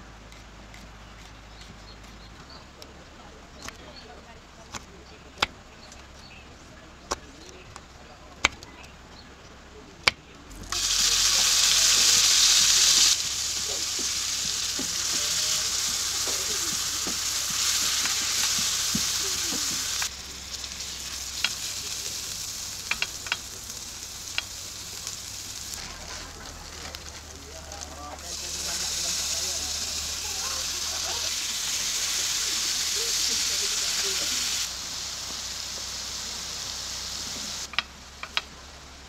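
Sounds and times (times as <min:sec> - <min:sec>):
food sizzling in a pan: 0:10.6 - 0:37.7
sharp clicks and taps: 0:21.4 - 0:21.6, 0:22.8 - 0:23.5, 0:24.3 - 0:24.5, 0:37.7 - 0:38.5.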